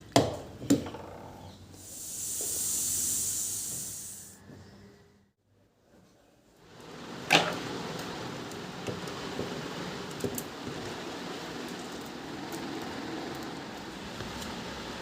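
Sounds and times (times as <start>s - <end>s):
steady background hiss: 1.7s - 4.5s.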